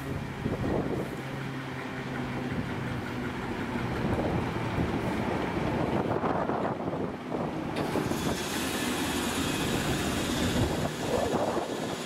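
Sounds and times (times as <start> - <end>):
wind buffeting microphone: 0.0 - 1.2, 2.4 - 8.5, 9.3 - 12.0
train wheels rumbling on rails: 0.0 - 12.0
high hiss: 7.8 - 12.0.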